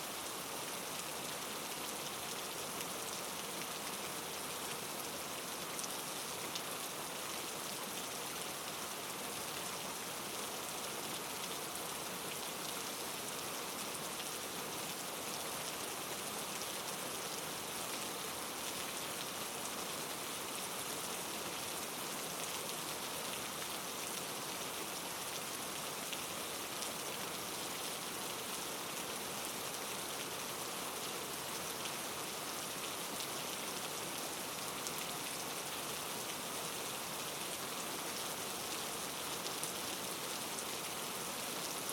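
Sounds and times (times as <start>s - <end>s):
steady rainfall: 0.0s - 41.9s.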